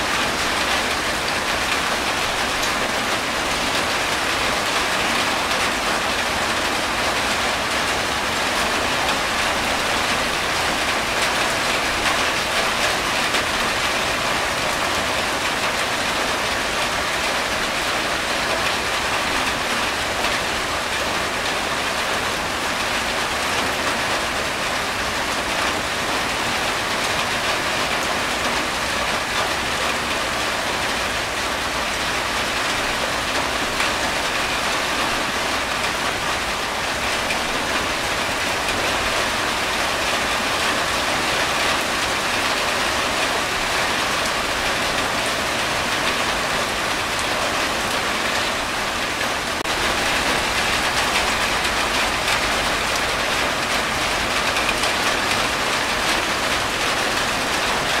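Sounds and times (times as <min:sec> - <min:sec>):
rain on a tin roof: 0:00.0 - 0:58.0.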